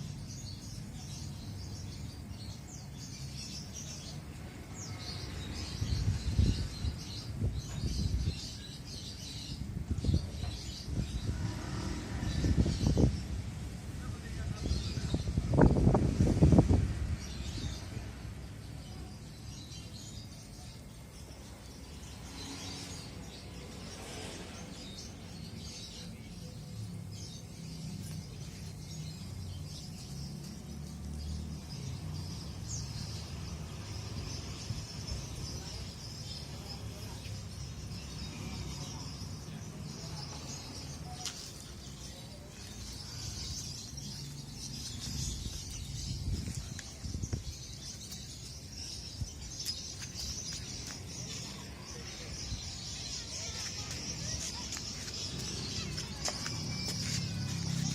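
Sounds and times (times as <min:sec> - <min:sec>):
birds chirping faintly: 0:00.0 - 0:57.9.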